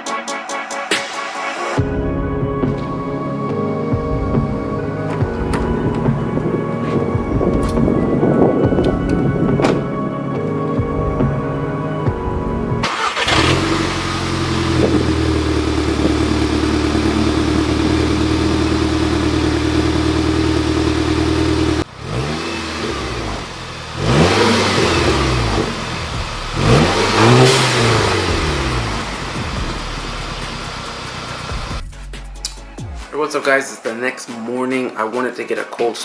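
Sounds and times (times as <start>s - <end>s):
car engine revving: 12.8s - 31.8s.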